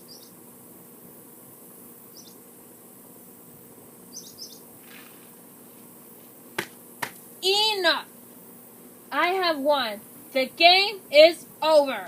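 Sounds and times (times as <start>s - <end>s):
faint bird chirps: 0.0s - 0.4s, 2.1s - 2.4s, 4.1s - 5.2s
steady background hiss: 0.0s - 12.0s.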